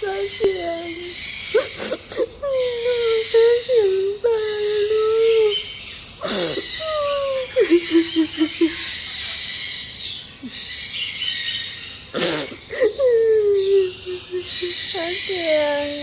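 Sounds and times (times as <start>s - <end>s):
small bird chirping rapidly: 0.0s - 16.0s
person whimpering and cooing: 6.2s - 8.5s, 12.2s - 14.8s.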